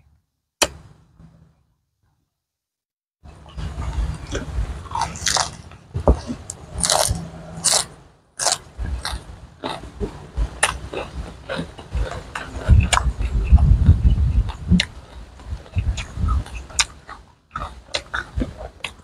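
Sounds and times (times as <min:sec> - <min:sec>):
crisp chewing of lettuce: 0:03.5 - 0:19.0.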